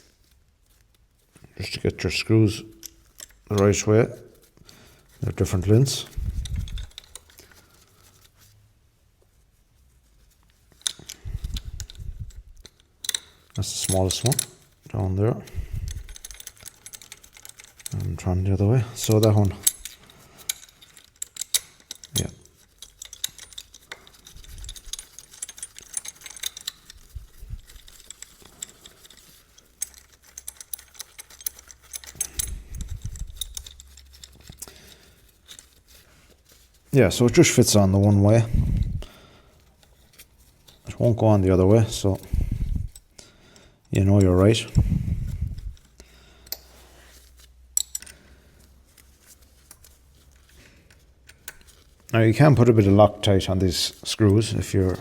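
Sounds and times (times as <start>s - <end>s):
small metal parts clinking: 2.5s - 8.3s, 10.5s - 43.2s, 43.8s - 55.0s.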